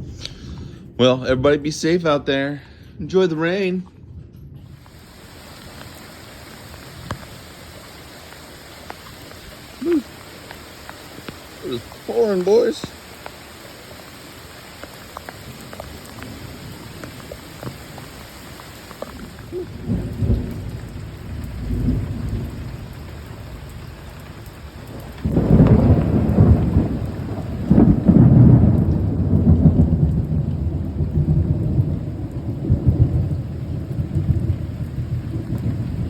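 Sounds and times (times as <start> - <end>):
thunder crack and rumble: 4.0 - 36.0
heavy rain: 4.7 - 36.0.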